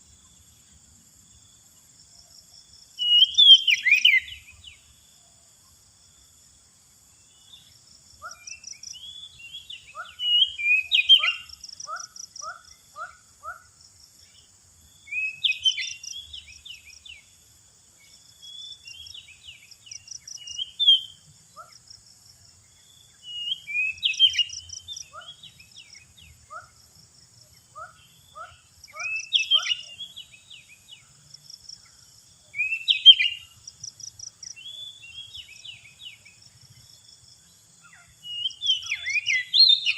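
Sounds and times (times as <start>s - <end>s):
bird singing whistles: 3.0s - 4.6s, 8.3s - 11.5s, 15.1s - 16.4s, 23.2s - 25.4s, 32.6s - 33.5s, 38.3s - 39.9s.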